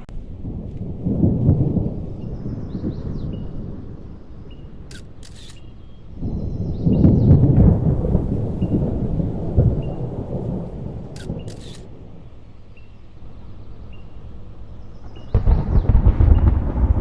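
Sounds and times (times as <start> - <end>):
deep thunder rumble: 0.0 - 17.0
sharp clicks: 4.9 - 5.8, 11.1 - 12.2.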